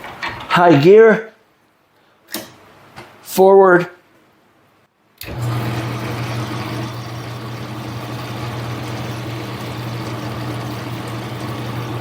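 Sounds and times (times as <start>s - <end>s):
lathe motor humming: 5.2s - 12.0s.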